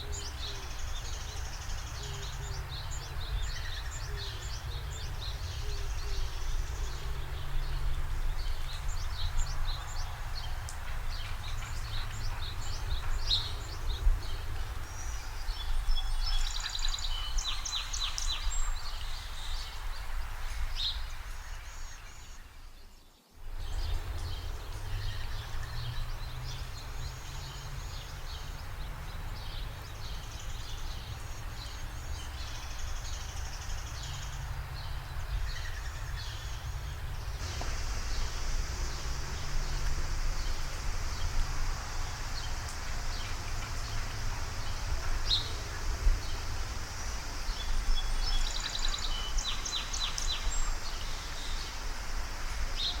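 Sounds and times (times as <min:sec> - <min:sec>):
steady low rumble: 0:32.2 - 0:50.9.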